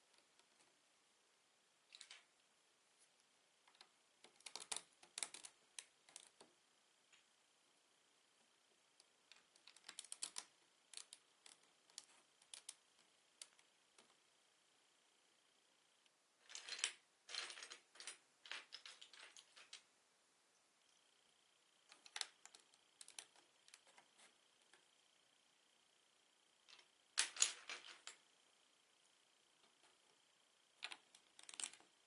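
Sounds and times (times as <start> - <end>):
plastic bricks clicking and rattling: 3.7 - 6.4, 9.3 - 12.8, 21.9 - 24.1, 30.8 - 31.9.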